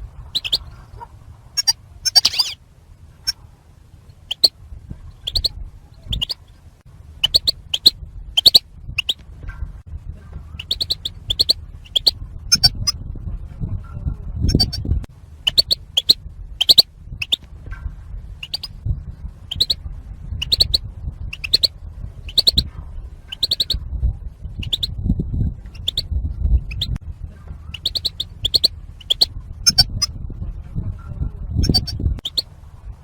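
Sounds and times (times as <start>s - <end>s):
finch chirps: 0.0s - 2.6s, 4.1s - 6.6s, 7.2s - 9.2s, 10.4s - 13.0s, 14.4s - 17.5s, 18.4s - 18.9s, 19.5s - 23.8s, 24.4s - 27.0s, 27.6s - 30.1s, 31.6s - 32.6s
low background rumble: 0.0s - 33.0s.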